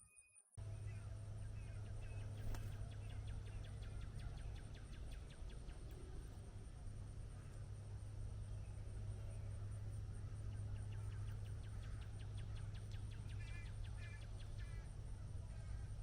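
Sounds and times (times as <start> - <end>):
low background hum: 0.6 - 16.0
birds calling: 0.7 - 16.0
high insect drone: 5.9 - 16.0.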